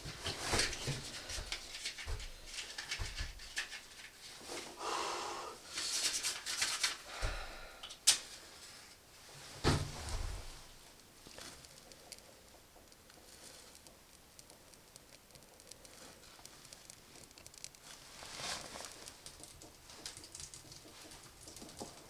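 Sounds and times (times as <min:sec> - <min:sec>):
rustling: 0:00.0 - 0:04.8, 0:05.6 - 0:22.0
dull thump: 0:09.6 - 0:10.5.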